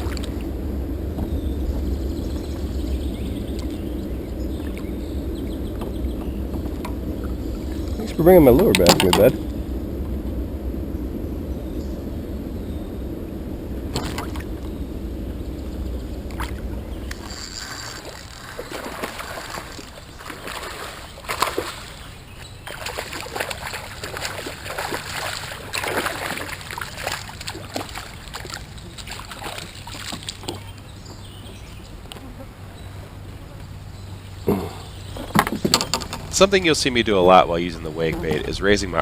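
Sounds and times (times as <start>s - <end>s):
water splashing around a kayak: 0.0s - 11.0s, 13.3s - 31.0s
wind rumble on microphone: 0.0s - 39.0s.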